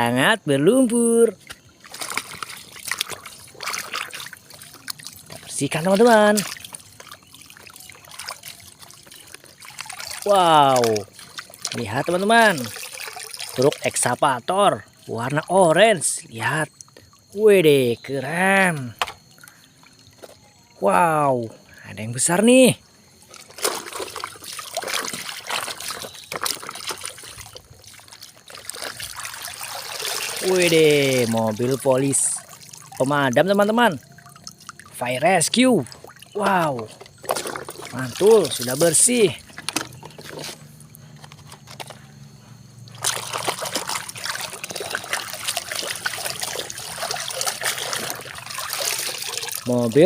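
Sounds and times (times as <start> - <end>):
water trickling and splashing: 0.0 - 50.0
scrubbing by hand: 1.4 - 13.9, 35.8 - 39.5, 42.9 - 50.0.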